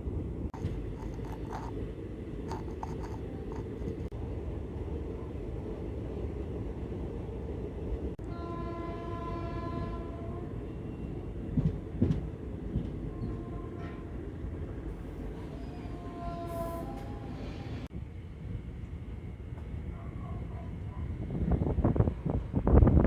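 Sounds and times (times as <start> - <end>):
train rumbling: 0.0 - 23.0
train horn: 8.2 - 11.2, 13.1 - 17.9.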